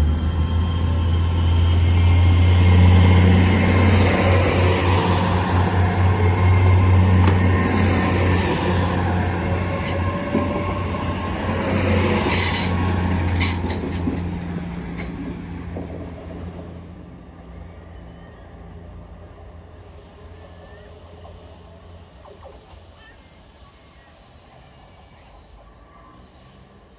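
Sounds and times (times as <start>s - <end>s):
train running on track: 0.0s - 26.9s
high wheel squeal: 0.1s - 15.1s, 17.6s - 26.9s
wheels clicking over rail joints: 5.1s - 16.6s.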